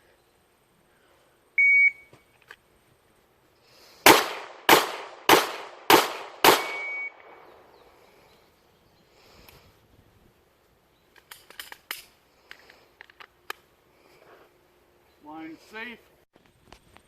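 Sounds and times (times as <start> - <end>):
short electronic beep: 1.6 - 2.1, 6.6 - 7.2
pistol shots: 4.0 - 7.4.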